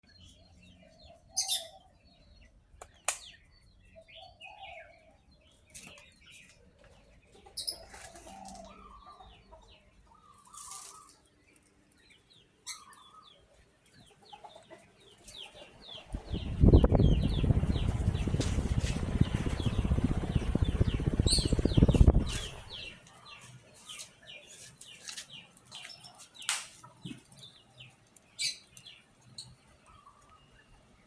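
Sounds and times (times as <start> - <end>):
birds chirping: 0.0 - 31.0
sharp clicks: 2.8 - 3.3
clucking bird calls: 2.8 - 11.2, 12.7 - 19.7
loud steady rushing noise: 16.1 - 22.9.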